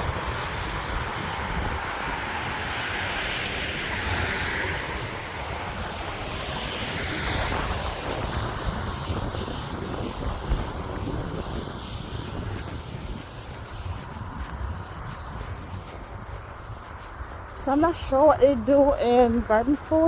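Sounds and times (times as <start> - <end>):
traffic on wet road: 0.0 - 20.0
wind buffeting microphone: 0.0 - 20.0.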